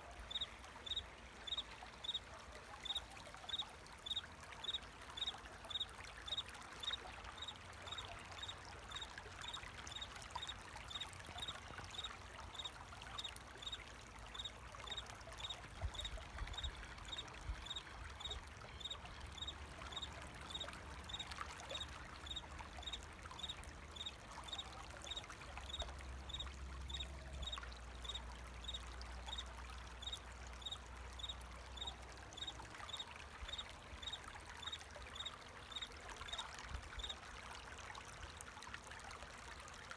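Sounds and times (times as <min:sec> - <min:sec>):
water running and trickling: 0:00.0 - 0:39.9
cricket chirping: 0:00.3 - 0:02.2, 0:17.6 - 0:29.4, 0:30.0 - 0:34.2.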